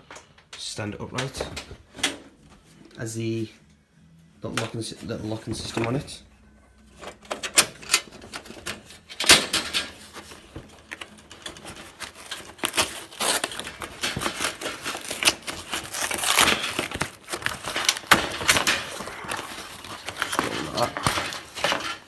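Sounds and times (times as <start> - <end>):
packaging rustling and crinkling: 5.0 - 6.2, 7.1 - 22.0.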